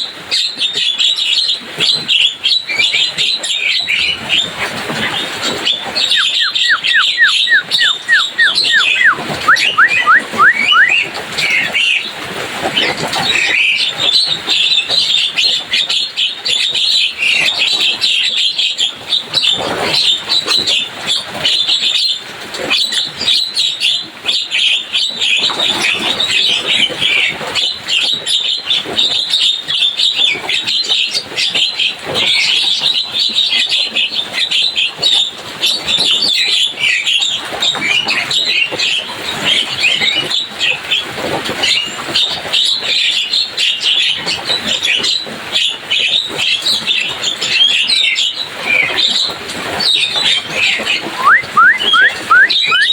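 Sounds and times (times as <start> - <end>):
bird chattering: 5.8 - 11.0, 51.2 - 52.9
rising bird whistles: 6.0 - 11.0, 51.1 - 52.9.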